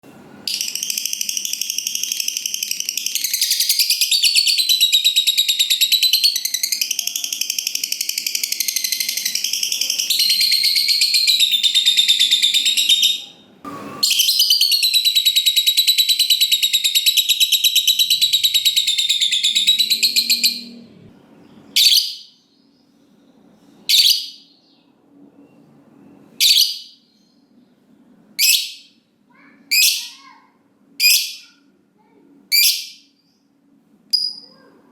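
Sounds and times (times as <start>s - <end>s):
lovebird trilling chatter: 0.5s - 13.3s, 14.0s - 20.7s.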